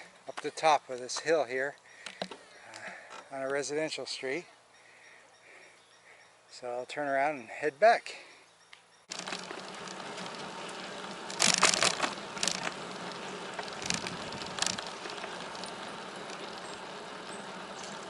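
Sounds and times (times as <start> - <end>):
bicycle rattles and crunches: 9.1 - 18.0
bicycle riding noise: 9.1 - 18.0.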